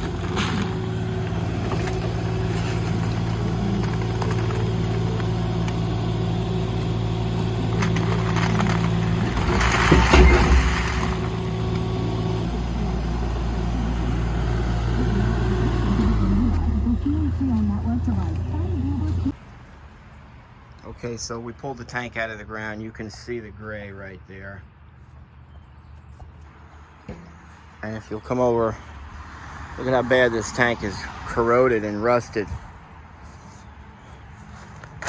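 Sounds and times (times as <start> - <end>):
clatter and scraping: 0.0 - 12.5
engine running: 0.0 - 19.4.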